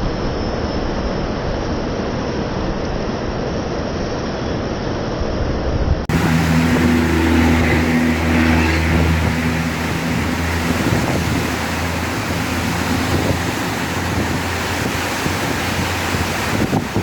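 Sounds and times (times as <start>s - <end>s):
heavy rain hissing: 6.1s - 17.0s
low engine hum: 6.1s - 17.0s.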